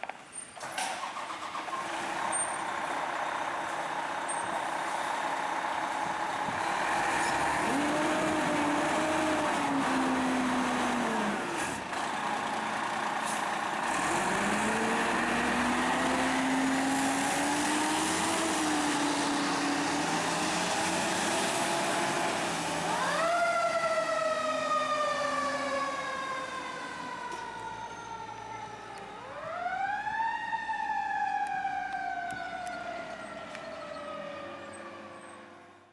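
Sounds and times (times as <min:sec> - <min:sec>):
heavy vehicle engine: 0:00.7 - 0:29.5
siren winding up and down: 0:22.8 - 0:35.1.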